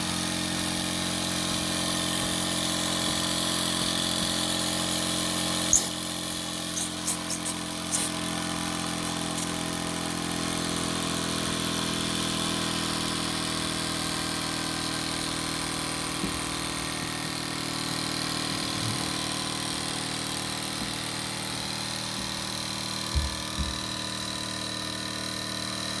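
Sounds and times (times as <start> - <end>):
toy steam engine running: 0.2 - 23.1
sharp clicks: 6.8 - 8.2.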